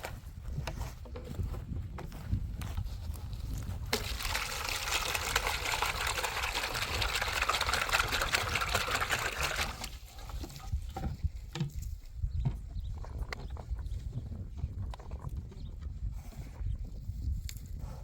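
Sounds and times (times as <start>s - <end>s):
water pouring: 3.9s - 10.6s.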